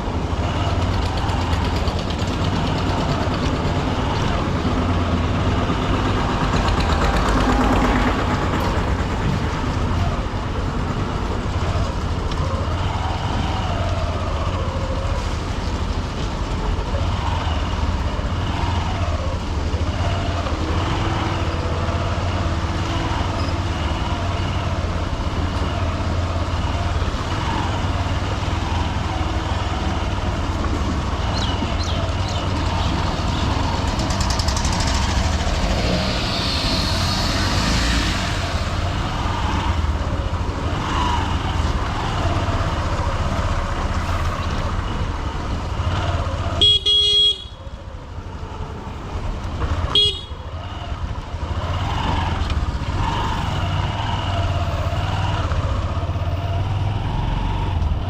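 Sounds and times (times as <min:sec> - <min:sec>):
motorcycle engine running: 0:00.0 - 0:15.0, 0:15.8 - 0:43.9
rumble of trucks and cars: 0:00.0 - 0:58.0
high hiss: 0:35.0 - 0:39.8.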